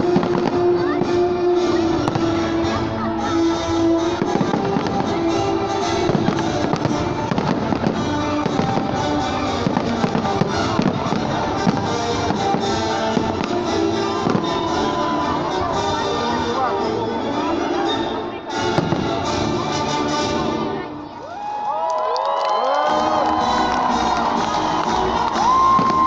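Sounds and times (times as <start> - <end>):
fireworks bangs: 0.0 - 16.1, 18.6 - 19.6, 23.1 - 26.0
music playing: 0.0 - 21.3, 22.6 - 26.0.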